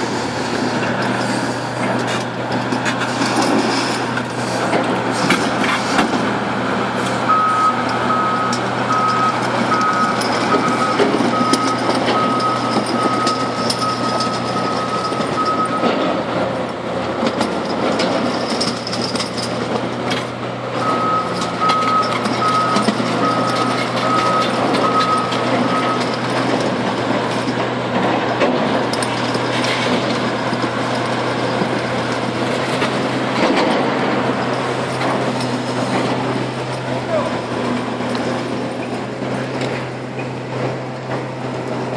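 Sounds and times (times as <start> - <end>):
diesel engine running under load: 0.0 - 41.9
reversing alarm beeping: 7.3 - 15.9, 20.8 - 26.3.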